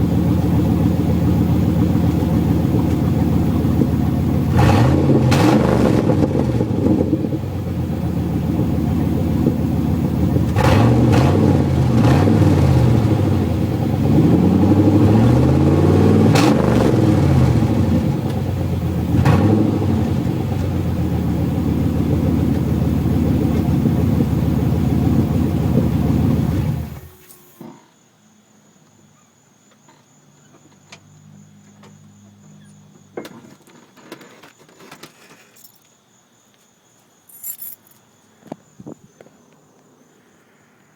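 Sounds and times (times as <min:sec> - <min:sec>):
car engine idling and revving: 0:00.0 - 0:27.6.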